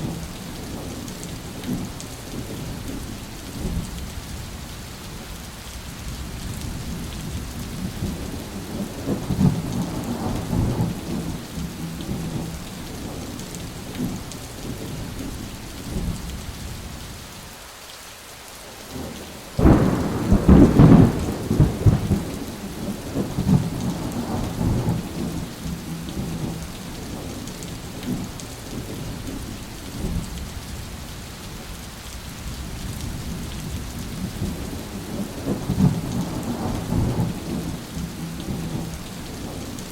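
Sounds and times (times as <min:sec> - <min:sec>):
rain falling: 0:00.0 - 0:39.9
thunder rumbling: 0:06.2 - 0:12.5, 0:19.6 - 0:27.4, 0:32.6 - 0:39.8
loud thunderclap: 0:19.6 - 0:25.4.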